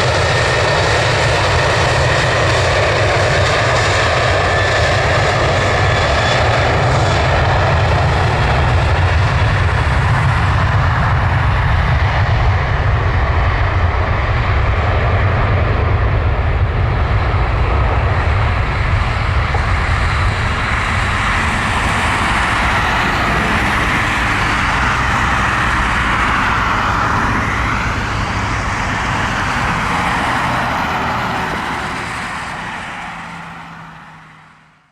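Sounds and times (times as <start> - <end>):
jet airliner engines rumbling: 0.0 - 34.9.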